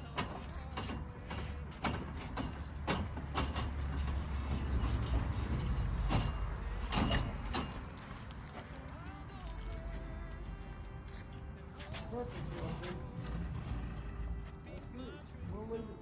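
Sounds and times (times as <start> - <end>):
scaffolding frame clanks and knocks: 0.0 - 8.0.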